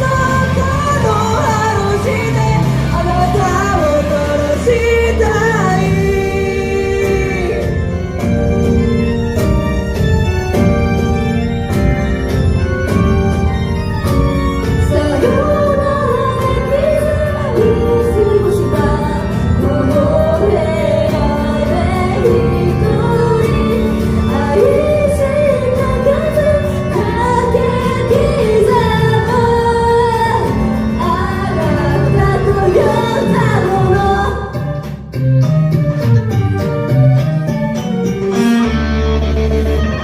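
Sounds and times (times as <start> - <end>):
women singing pop song: 0.0 - 8.0, 14.8 - 34.8
loud backing track: 0.0 - 40.0.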